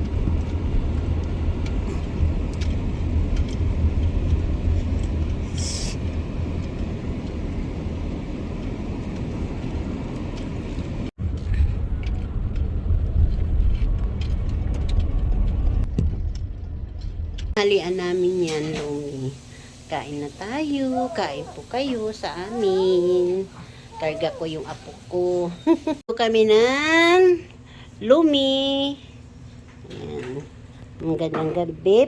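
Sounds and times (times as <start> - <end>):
car engine and road rumble: 0.0 - 17.8
tyre hiss: 5.5 - 6.0.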